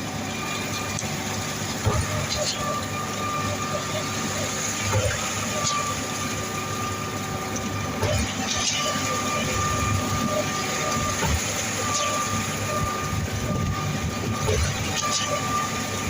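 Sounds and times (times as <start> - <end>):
concrete pumping machinery running: 0.0 - 16.0
high whine: 0.0 - 16.0
machinery clunks: 1.8 - 3.6, 4.7 - 6.0, 8.0 - 15.6.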